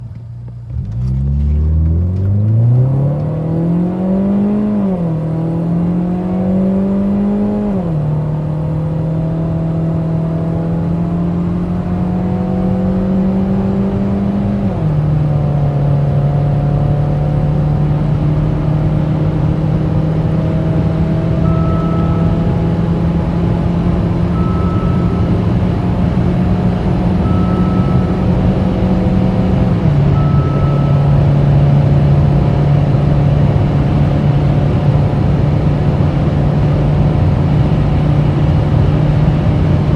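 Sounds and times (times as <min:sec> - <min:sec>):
car engine accelerating: 0:00.0 - 0:39.9
short beep: 0:21.3 - 0:32.0.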